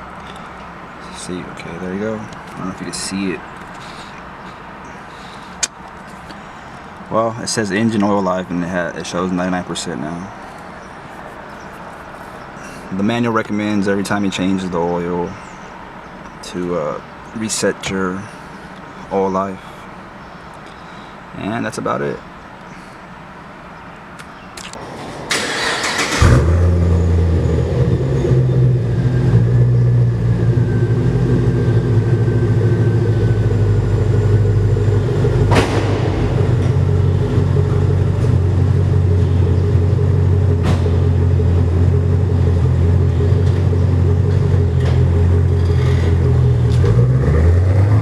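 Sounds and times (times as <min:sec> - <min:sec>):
car engine idling: 0:00.0 - 0:48.0
sharp clicks: 0:03.6 - 0:06.4, 0:24.2 - 0:26.3
car engine starter cranking: 0:24.3 - 0:47.9.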